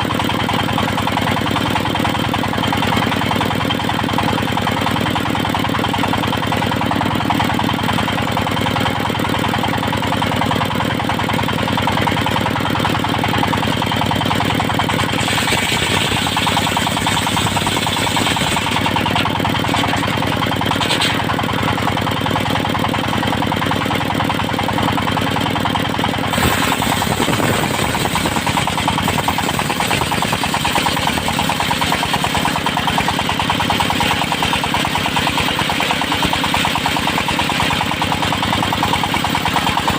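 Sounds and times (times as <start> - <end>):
circular sawmill running: 0.0 - 39.9
saw blade cutting hiss: 26.3 - 29.7.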